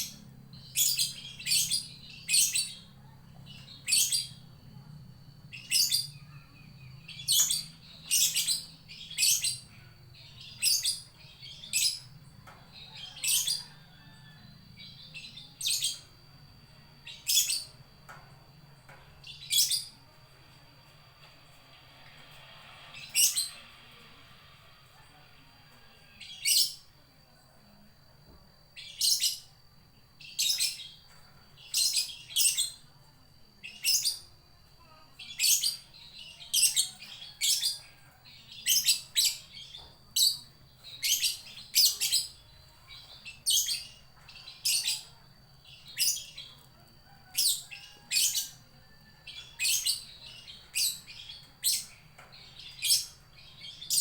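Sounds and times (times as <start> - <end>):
bird shrill calls: 23.0 - 23.6.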